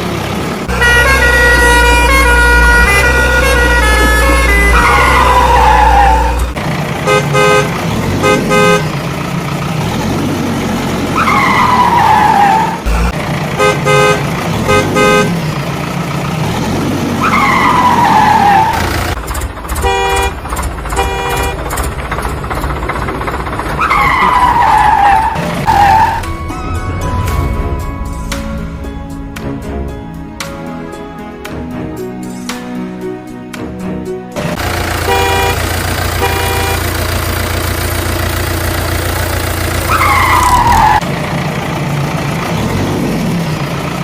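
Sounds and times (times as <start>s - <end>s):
vehicle horn toots: 0.7s - 6.4s, 7.0s - 8.9s, 13.6s - 15.4s, 19.8s - 21.8s, 34.9s - 37.0s.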